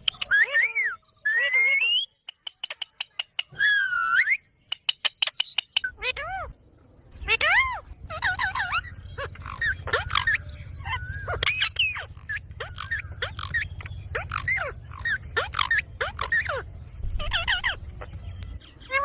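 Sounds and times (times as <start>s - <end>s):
parrot squawking: 2.7s - 6.6s, 7.2s - 18.1s, 18.8s - 19.0s
steady low hum: 6.4s - 18.9s.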